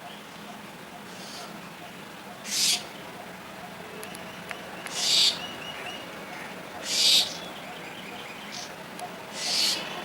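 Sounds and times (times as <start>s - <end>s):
parrot harsh raspy calls: 2.4s - 2.9s, 4.9s - 5.4s, 6.3s - 7.4s, 9.3s - 10.0s.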